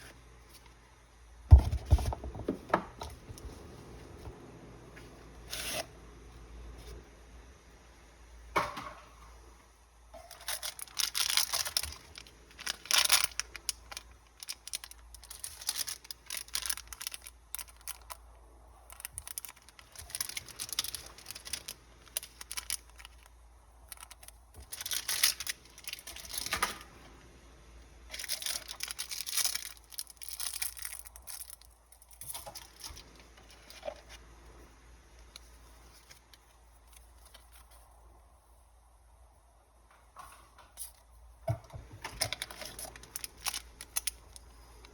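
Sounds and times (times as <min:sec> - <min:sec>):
packaging rustling and tearing: 0:10.2 - 0:26.9, 0:28.1 - 0:34.2, 0:41.9 - 0:44.9.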